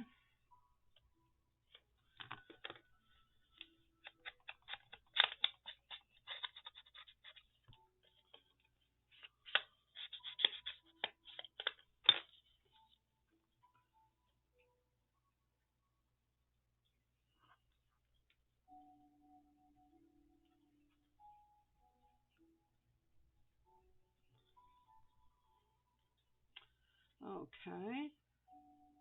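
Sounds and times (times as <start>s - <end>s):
scissors snipping paper: 4.0s - 8.5s, 9.2s - 12.4s.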